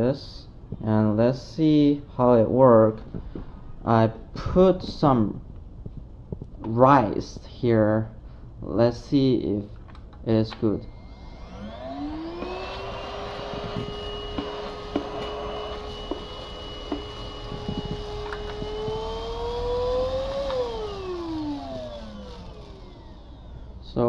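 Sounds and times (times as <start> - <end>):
vacuum motor whine: 10.8 - 24.0.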